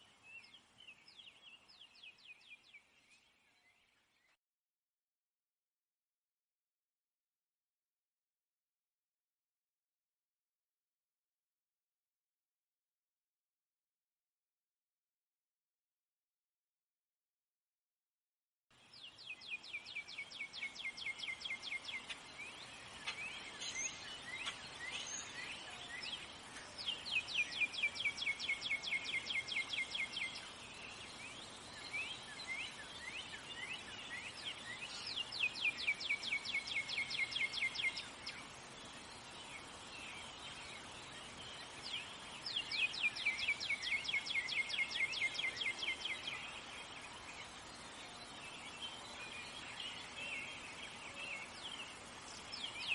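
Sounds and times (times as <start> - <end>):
outdoor ambience hiss: 0.0 - 4.4, 18.7 - 52.9.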